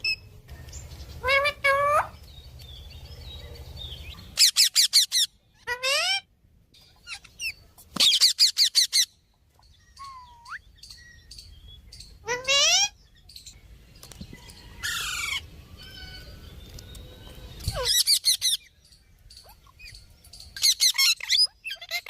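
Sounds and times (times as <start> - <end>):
parrot shrill cries: 1.2 - 2.2, 4.4 - 6.3, 12.2 - 13.0, 17.7 - 18.6, 20.6 - 22.0.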